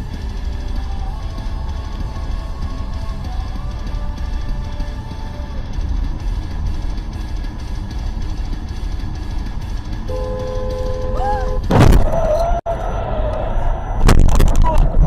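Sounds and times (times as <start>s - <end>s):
vehicle rumble: 0.0s - 15.0s
car horn: 10.1s - 11.7s
loud crash impact: 11.6s - 12.2s.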